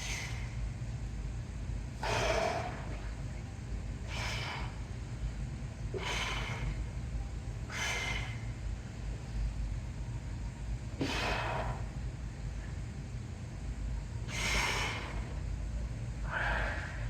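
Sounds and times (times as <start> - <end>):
man exhaling forcefully: 0.0 - 0.5, 2.0 - 3.0, 4.1 - 4.8, 5.9 - 6.8, 7.7 - 8.5, 11.0 - 11.9, 14.3 - 15.2, 16.3 - 17.0
steady low hum: 0.0 - 17.0.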